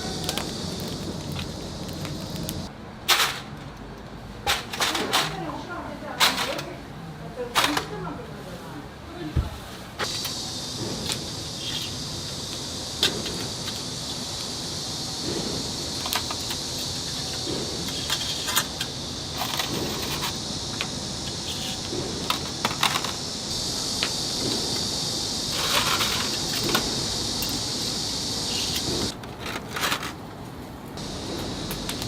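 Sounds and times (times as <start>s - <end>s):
chicken sizzling on grill: 0.0s - 2.7s, 10.0s - 29.1s
fire crackling: 0.0s - 2.7s, 10.0s - 29.2s, 30.9s - 32.0s.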